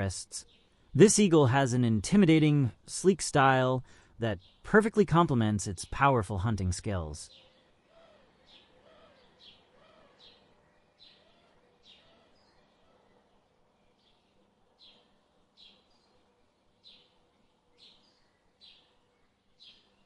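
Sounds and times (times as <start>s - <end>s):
bird chirping: 4.2s - 4.8s, 5.8s - 20.0s.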